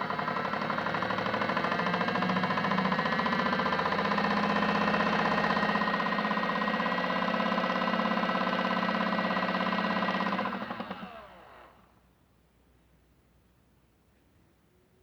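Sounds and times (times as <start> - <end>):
small electric motor whining: 8.7 - 11.8.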